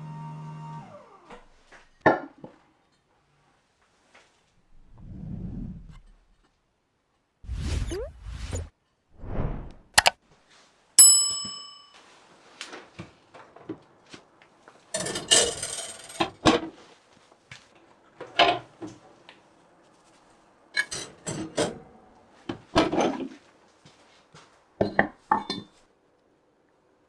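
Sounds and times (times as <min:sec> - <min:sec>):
metallic ding: 0:11.0 - 0:12.0.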